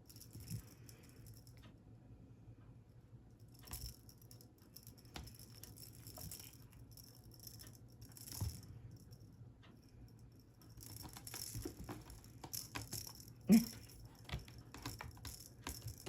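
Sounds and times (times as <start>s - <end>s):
cat toy rattling: 3.6s - 9.1s, 10.6s - 16.0s.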